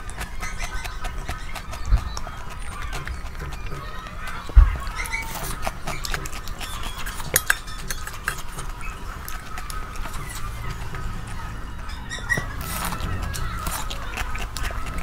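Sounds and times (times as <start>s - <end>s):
wet mouth chewing: 0.0s - 15.0s.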